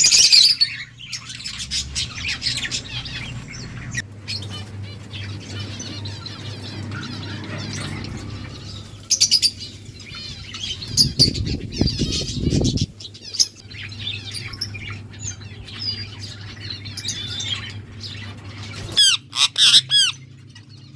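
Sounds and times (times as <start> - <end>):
small parrots chirping and squawking: 0.0 - 20.9
low fluttering rumble: 0.8 - 19.0.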